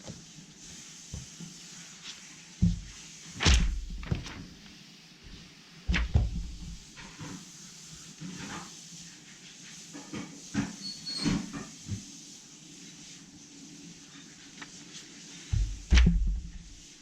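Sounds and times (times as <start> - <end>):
loud knock: 15.6 - 16.7.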